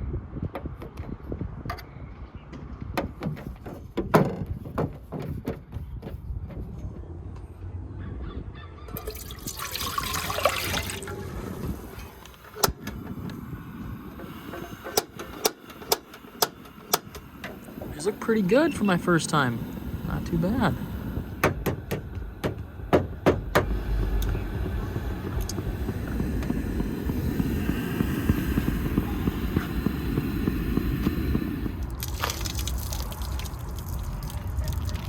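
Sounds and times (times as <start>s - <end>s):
water pouring and splashing: 8.9s - 12.6s, 31.6s - 35.0s.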